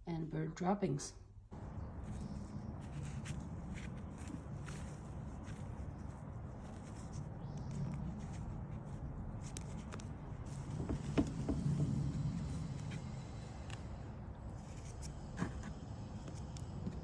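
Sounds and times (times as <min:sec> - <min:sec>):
rustling of shredded paper: 0:01.6 - 0:10.7.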